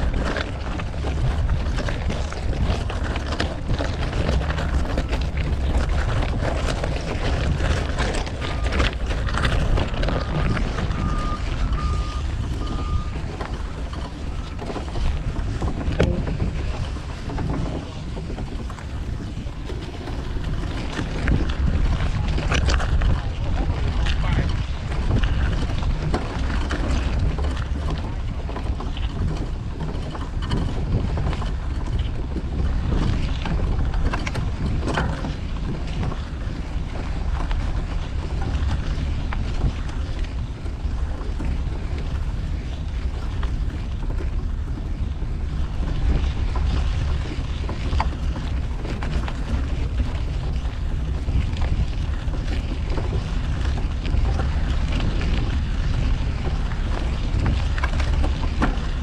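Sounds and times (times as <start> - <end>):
city street traffic: 0.0 - 26.4
wind rumbling on microphone: 0.0 - 59.0.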